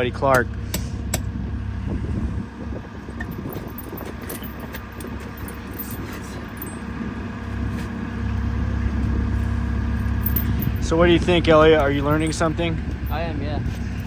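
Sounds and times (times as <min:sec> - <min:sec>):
diesel engine idling: 0:00.0 - 0:14.0
metallic clinking of tire chains: 0:03.2 - 0:07.7, 0:09.2 - 0:14.0.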